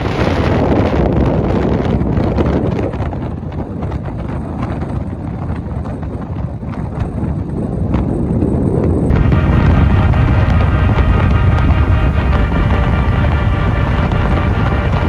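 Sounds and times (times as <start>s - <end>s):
wind buffeting microphone: 0.0s - 15.0s
music: 9.1s - 15.0s.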